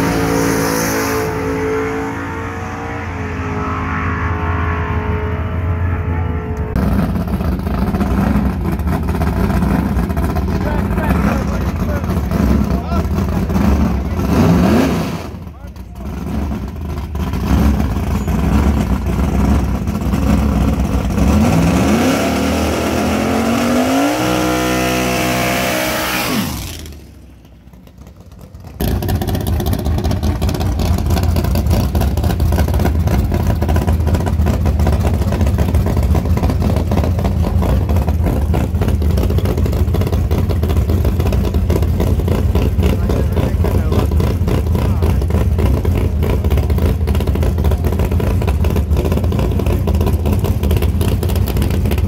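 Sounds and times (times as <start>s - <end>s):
drag car engine idling: 6.7s - 14.6s, 15.2s - 21.4s, 26.6s - 52.0s.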